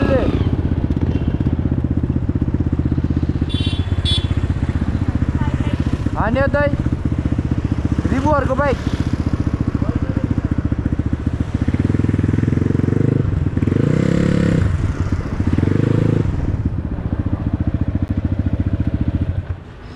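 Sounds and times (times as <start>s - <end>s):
dirt bike engine revving: 0.0s - 5.0s, 11.4s - 16.6s.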